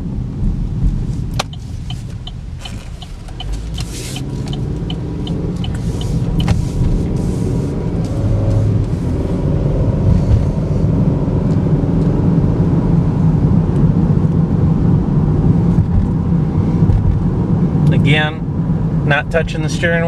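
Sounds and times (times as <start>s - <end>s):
car engine and tyre rumble: 0.0s - 20.0s
light ticks: 1.3s - 6.6s.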